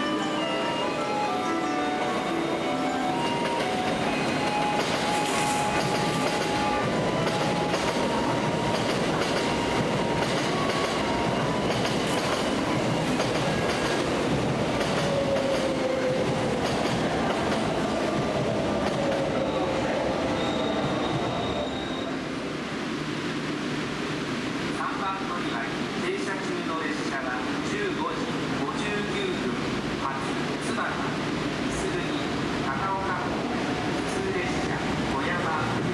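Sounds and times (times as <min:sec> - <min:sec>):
train wheels clicking over rail joints: 0:03.5 - 0:19.4.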